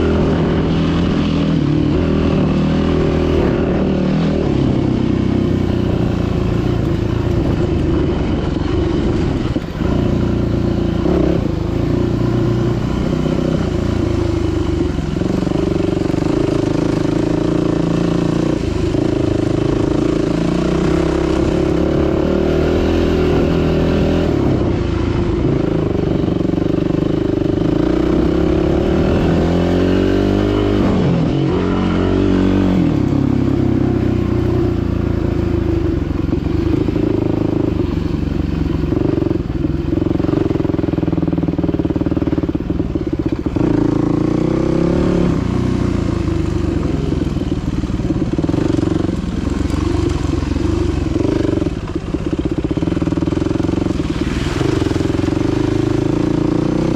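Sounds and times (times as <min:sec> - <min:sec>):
dirt bike engine running: 0:00.0 - 0:56.9.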